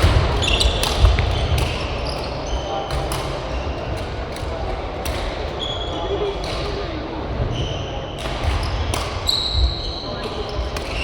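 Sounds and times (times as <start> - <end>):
racket hitting shuttlecock: 0.0 - 2.2
shoes squeaking on floor: 0.4 - 2.9, 7.4 - 11.0.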